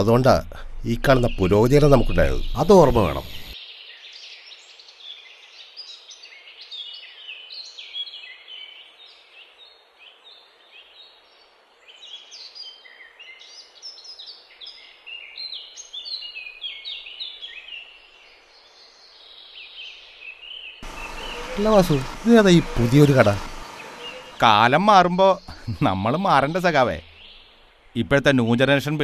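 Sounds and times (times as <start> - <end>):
background hiss: 0.0 - 29.0
small birds chirping: 1.0 - 28.8.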